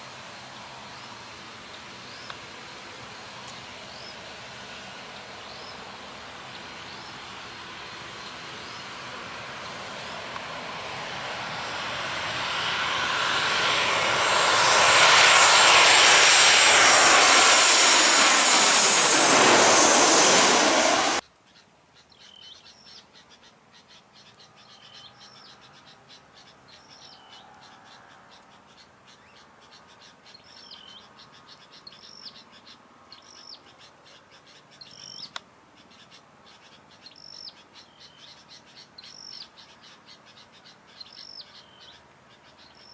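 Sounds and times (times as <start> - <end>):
airliner passing overhead: 0.0 - 21.2.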